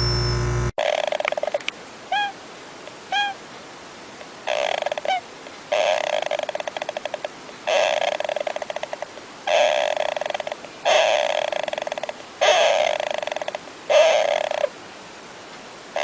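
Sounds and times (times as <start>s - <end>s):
short chirps: 0.0s - 0.7s
steady electronic tone: 0.0s - 0.7s
animal stuttering calls: 0.8s - 1.6s, 4.5s - 14.7s.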